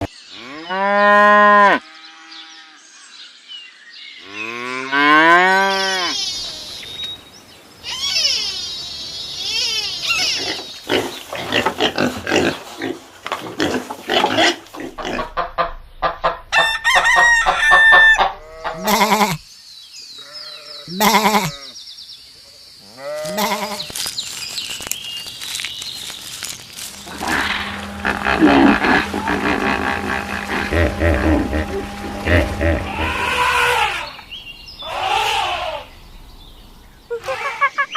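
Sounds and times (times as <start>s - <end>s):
livestock and poultry calls: 4.2s - 6.9s, 7.8s - 19.5s, 20.1s - 21.8s, 22.8s - 24.0s, 26.8s - 37.9s.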